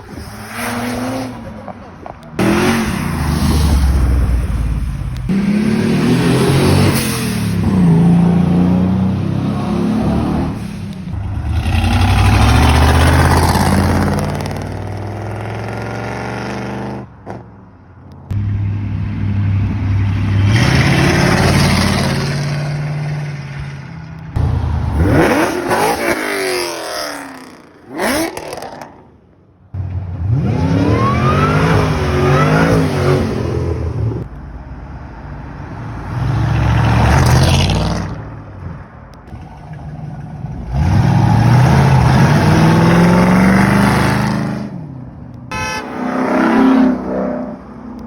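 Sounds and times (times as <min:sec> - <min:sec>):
car engines accelerating hard: 0:00.0 - 0:17.1, 0:35.6 - 0:48.0.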